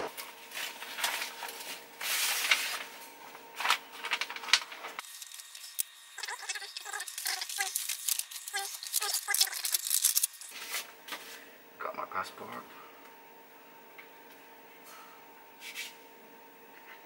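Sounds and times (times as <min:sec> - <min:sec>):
paper and bag rustling: 0:00.4 - 0:03.0, 0:03.6 - 0:10.9.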